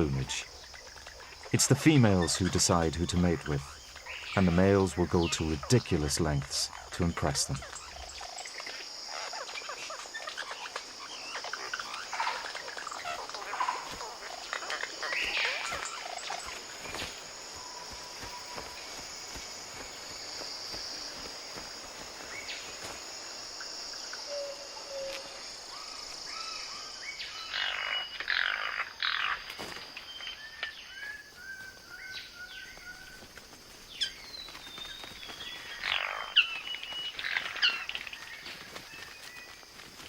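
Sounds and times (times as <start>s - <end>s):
harsh rasping bird calls: 0.0s - 29.5s, 34.0s - 39.5s
birds whistling calls: 24.2s - 29.4s.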